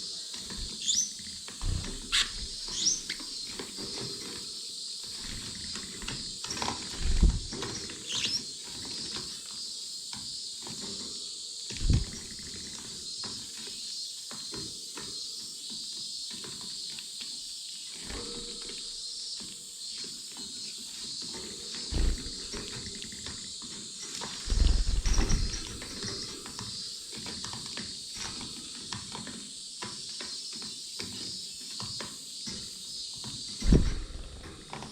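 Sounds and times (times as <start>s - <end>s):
finches chirping: 0.0s - 34.9s
soft thumps: 21.9s - 22.6s, 33.6s - 34.6s.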